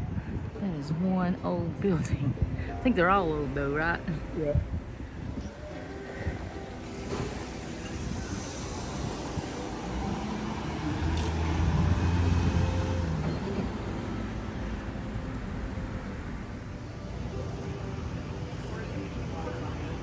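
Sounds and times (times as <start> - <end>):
steady traffic noise: 0.0 - 20.0
vehicle engine passing: 5.2 - 20.0.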